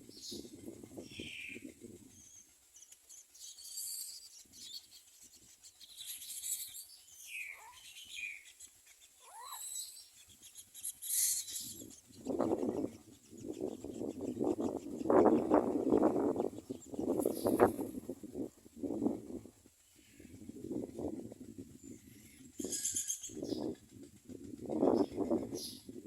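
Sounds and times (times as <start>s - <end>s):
nestlings chirping: 0.1s - 18.0s.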